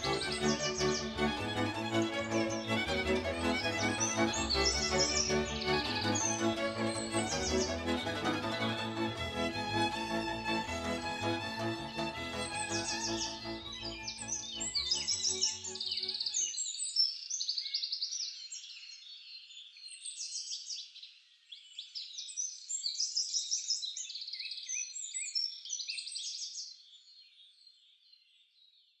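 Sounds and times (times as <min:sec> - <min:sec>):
songbirds singing: 0:11.9 - 0:20.5.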